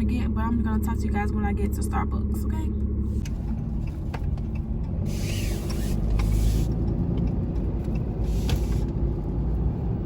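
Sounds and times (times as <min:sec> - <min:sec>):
vehicle engine and road rumble: 0:00.0 - 0:10.0.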